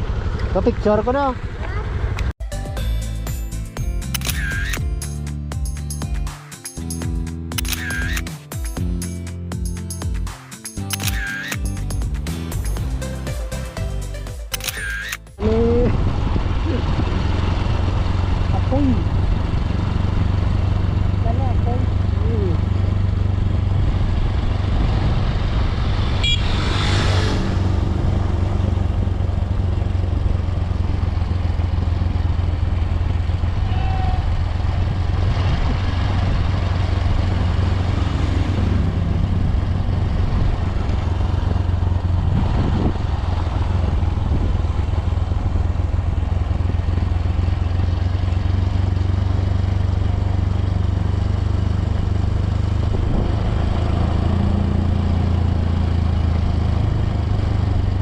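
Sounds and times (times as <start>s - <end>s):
motorcycle engine running: 0.0s - 2.3s, 15.3s - 58.0s.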